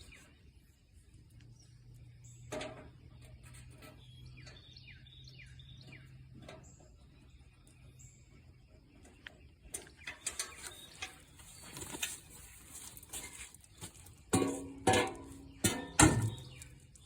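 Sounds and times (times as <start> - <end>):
songbird chirping: 0.0 - 17.0.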